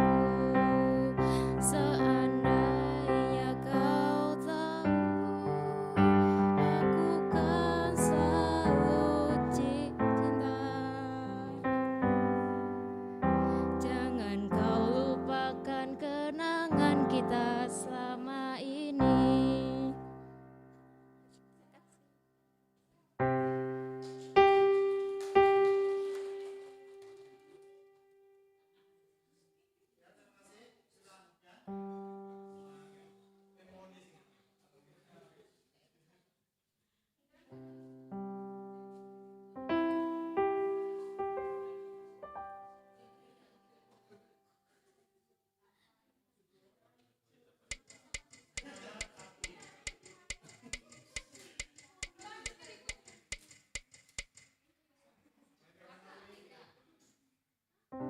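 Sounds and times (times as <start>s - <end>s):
piano chord and notes: 0.0s - 21.4s, 23.2s - 28.2s, 31.7s - 33.2s, 37.8s - 43.2s
sharp steady clicks: 47.7s - 54.6s.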